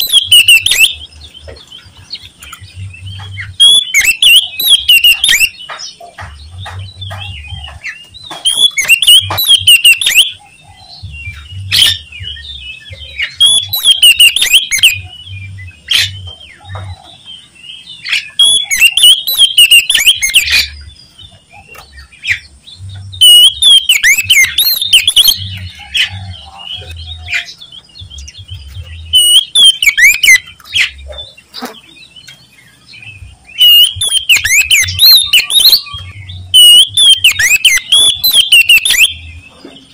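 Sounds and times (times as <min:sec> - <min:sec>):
bird clicks and calls: 0:00.0 - 0:10.5, 0:13.1 - 0:17.2, 0:18.0 - 0:20.8, 0:21.4 - 0:32.5, 0:33.5 - 0:39.9
bird warbling song: 0:00.0 - 0:39.9.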